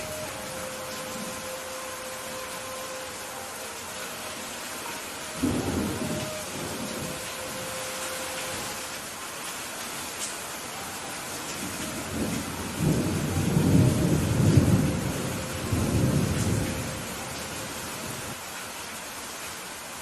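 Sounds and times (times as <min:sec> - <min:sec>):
steady rain: 0:00.0 - 0:20.0
thunder rumbling: 0:05.3 - 0:08.9, 0:11.6 - 0:18.4.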